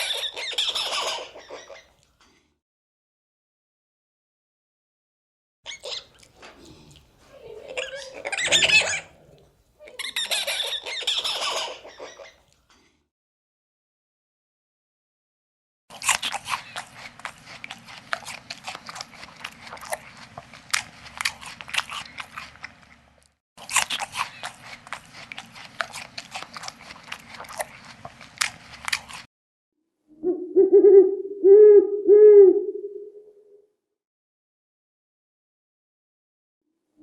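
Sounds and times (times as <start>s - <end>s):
owl hooting: 30.1s - 33.6s.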